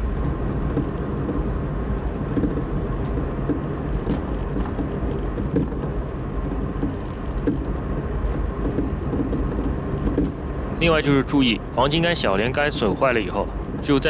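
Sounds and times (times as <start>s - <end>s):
suspension links knocking: 0.0s - 10.8s
tyre and road noise: 0.0s - 14.0s.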